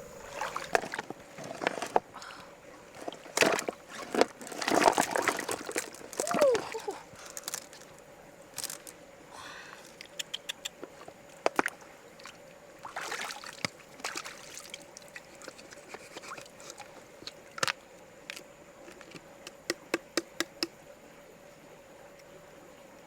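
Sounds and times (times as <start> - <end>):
short rush like water: 0.0 - 10.2, 10.8 - 17.4
faint steady hum: 0.0 - 23.0
sharp clicks and knocks: 19.1 - 20.7.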